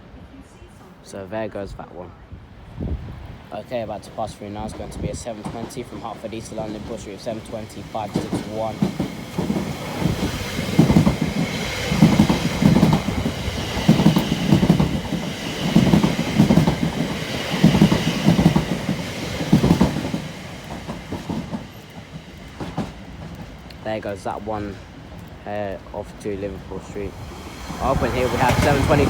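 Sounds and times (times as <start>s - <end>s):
high train whine: 2.2s - 29.0s
train wheels clicking over rail joints: 3.8s - 29.0s.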